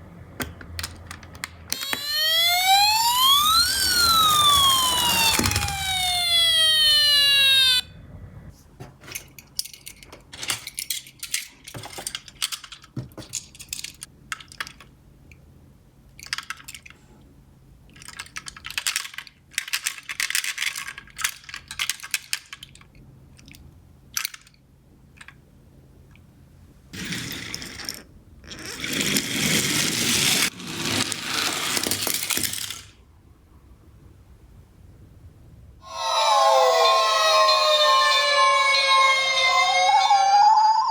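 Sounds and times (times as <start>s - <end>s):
toy cars clicking and clinking: 0.8s - 7.6s, 9.2s - 14.9s, 16.1s - 17.0s, 17.9s - 25.4s, 27.0s - 33.0s
toy cars rolling rattle: 0.8s - 7.6s, 9.2s - 14.9s, 17.9s - 23.6s, 27.0s - 33.0s
toy car electronic siren: 1.7s - 7.9s, 35.8s - 40.9s.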